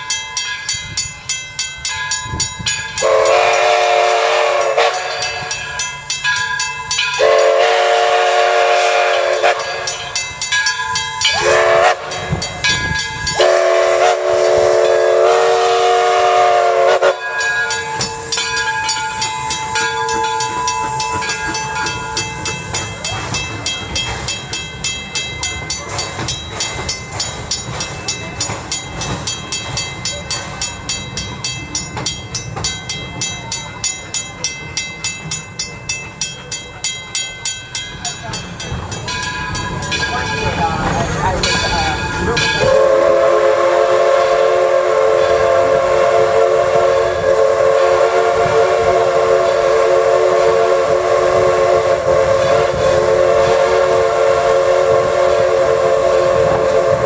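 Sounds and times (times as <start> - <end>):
locomotive whistle blasts: 3.0 - 5.6, 7.2 - 10.0, 11.2 - 22.5, 42.6 - 57.0.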